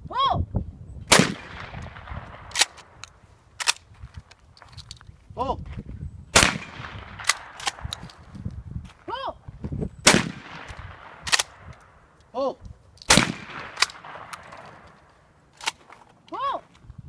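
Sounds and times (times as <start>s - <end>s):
shotgun shots: 1.1s - 3.0s, 6.4s - 8.0s, 10.0s - 12.0s, 13.1s - 15.0s
person shouting pull: 16.3s - 16.6s.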